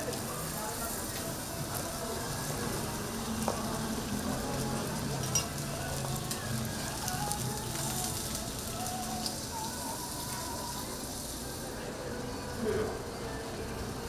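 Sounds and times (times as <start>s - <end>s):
food sizzling on griddle: 0.0s - 14.0s.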